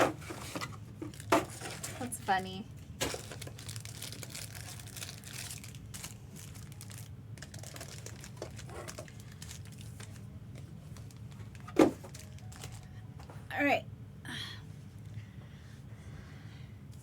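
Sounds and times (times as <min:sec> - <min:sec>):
plastic and foil packaging crinkling: 0:00.0 - 0:12.9
steady low hum: 0:00.0 - 0:17.0.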